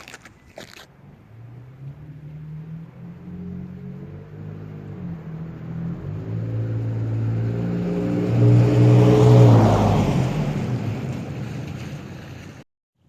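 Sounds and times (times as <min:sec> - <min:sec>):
tyre noise: 0:00.0 - 0:00.9
truck exhaust driving past: 0:01.0 - 0:12.6.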